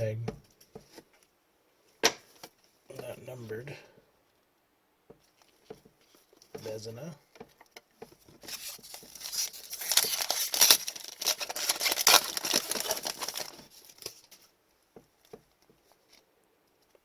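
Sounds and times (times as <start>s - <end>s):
foil wrapper tearing and crinkling: 8.5s - 14.4s.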